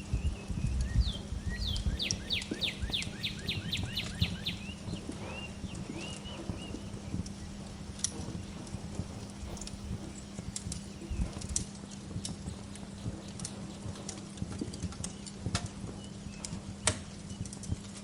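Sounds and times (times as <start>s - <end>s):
songbird whistling notes: 0.0s - 14.1s
wood fire crackling: 0.0s - 18.0s.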